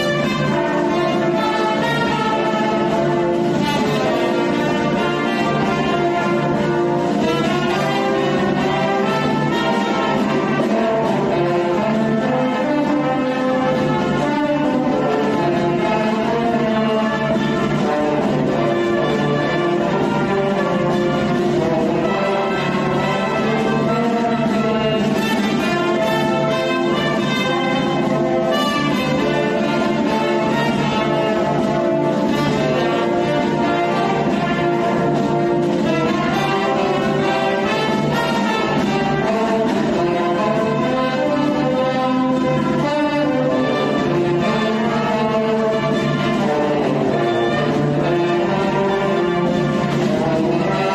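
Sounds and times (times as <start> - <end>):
brass band playing: 0.0 - 50.9.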